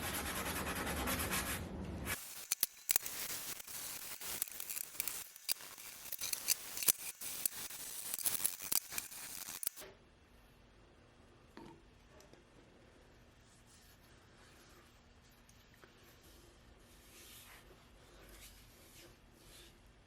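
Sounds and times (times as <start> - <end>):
sanding wooden handle: 0.0 - 9.8.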